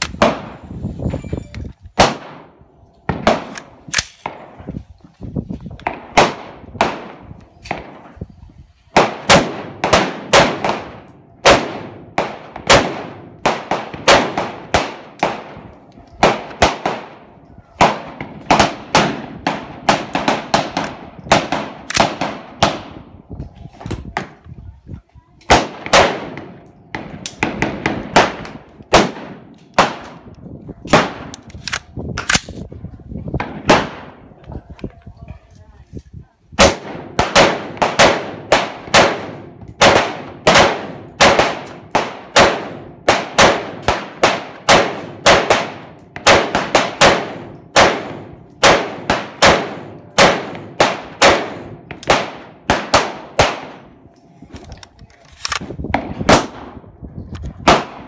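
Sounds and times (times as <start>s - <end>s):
rifle shots cracking: 3.1s - 4.6s, 9.0s - 15.6s, 17.8s - 23.0s, 25.5s - 30.3s, 30.9s - 32.6s, 36.6s - 53.9s, 57.6s - 58.0s.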